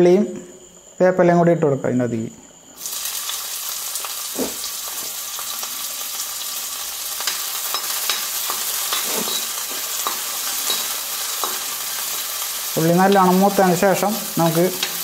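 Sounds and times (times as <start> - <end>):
shallots sizzling in oil: 2.8 - 15.0
steel spoon scraping pan: 7.3 - 12.3.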